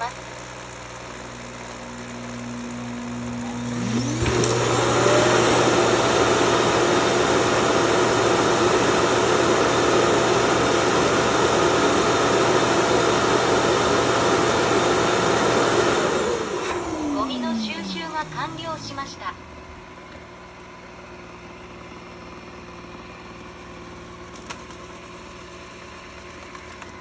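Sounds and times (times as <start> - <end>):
suction motor whining: 1.7 - 19.6.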